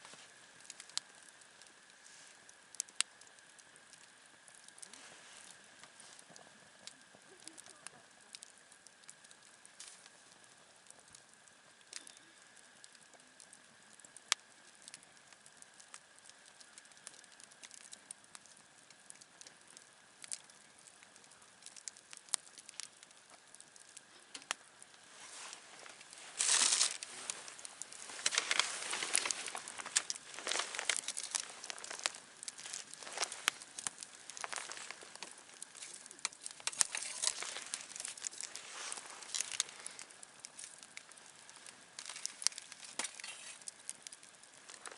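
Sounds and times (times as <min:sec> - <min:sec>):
rustling and crinkling: 0:00.0 - 0:12.2, 0:21.8 - 0:44.9
campfire crackling: 0:00.0 - 0:44.9
fire pops: 0:00.0 - 0:44.9.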